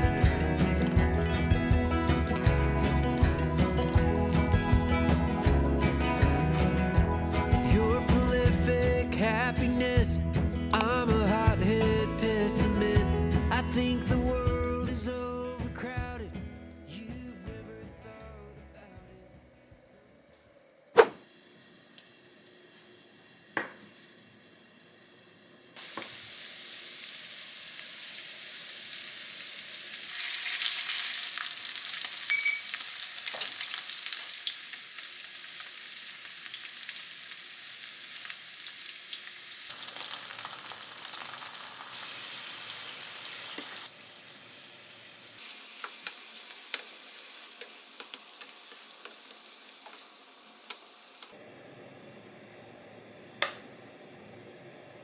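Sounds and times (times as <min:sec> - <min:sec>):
food sizzling in a pan: 0:25.8 - 0:51.4.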